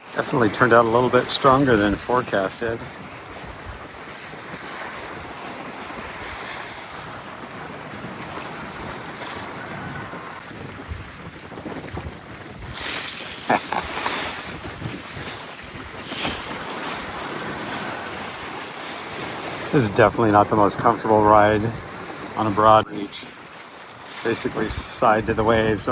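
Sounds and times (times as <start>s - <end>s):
waves washing along hull: 0.0s - 25.9s
wind buffeting microphone: 0.0s - 25.9s.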